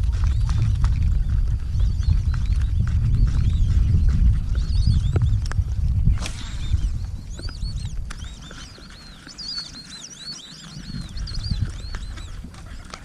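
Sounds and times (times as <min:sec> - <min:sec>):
low rumble: 0:00.0 - 0:08.1
birds chirping: 0:00.0 - 0:13.0.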